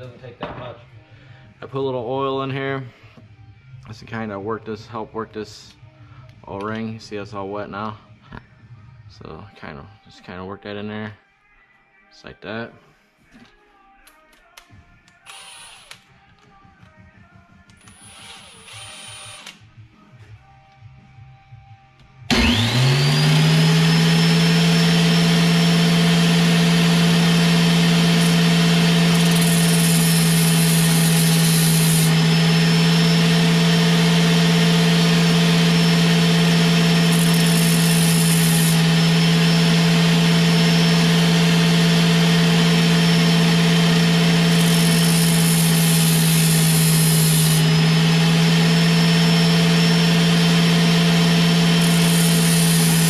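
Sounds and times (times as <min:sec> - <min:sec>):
electric grinder whining: 0:22.3 - 0:53.0.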